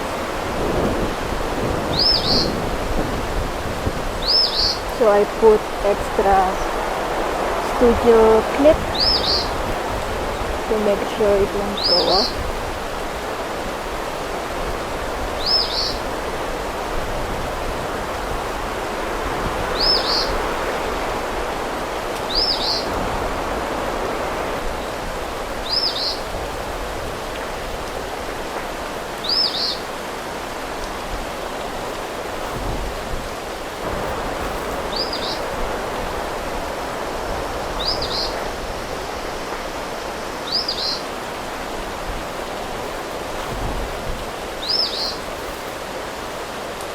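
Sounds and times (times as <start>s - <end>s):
steady outdoor hiss: 0.0s - 46.9s
bird chirping: 44.6s - 45.2s.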